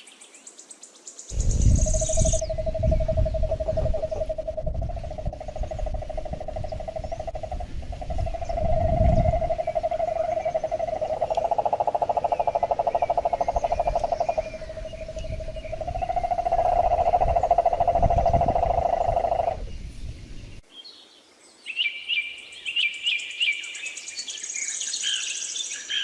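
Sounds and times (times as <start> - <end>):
faint bird chirps: 1.2 - 26.0
frogs trilling: 1.3 - 19.8
low rumbles: 1.3 - 20.6.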